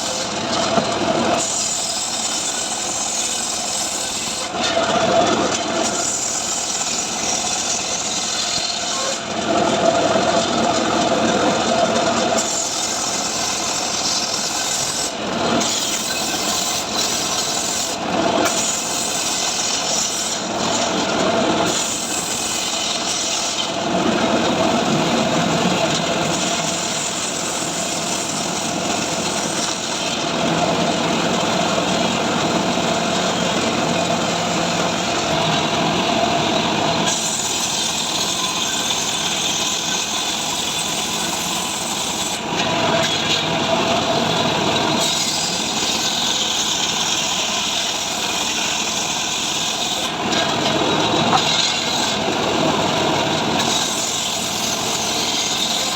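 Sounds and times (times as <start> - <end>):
chainsaw cutting wood: 12.4 - 55.9.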